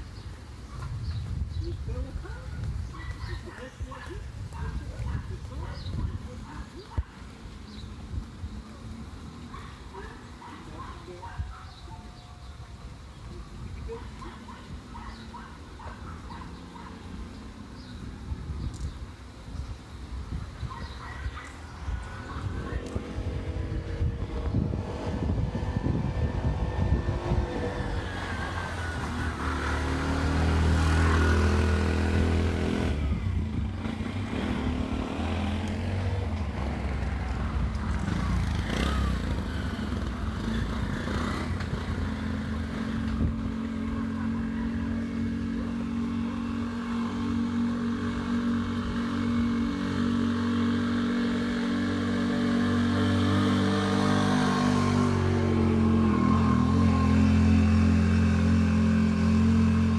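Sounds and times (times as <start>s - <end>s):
vehicle engine revving: 21.7s - 59.9s.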